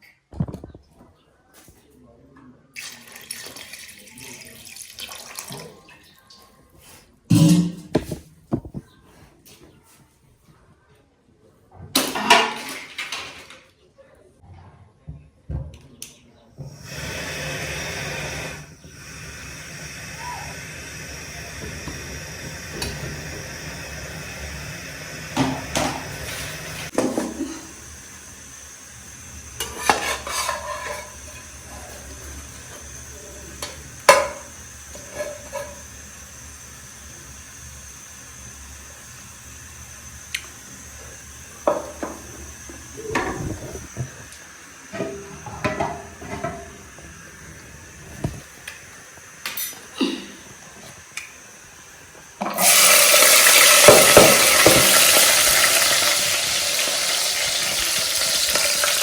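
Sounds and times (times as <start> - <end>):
food sizzling: 16.7 - 59.0.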